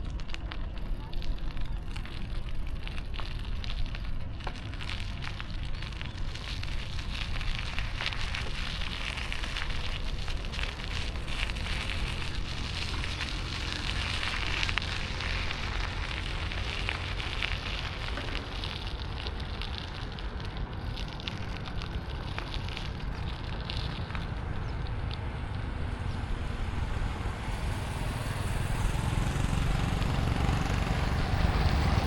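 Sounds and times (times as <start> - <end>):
dense crackling: 0.0 - 32.0
low street rumble: 0.0 - 32.0.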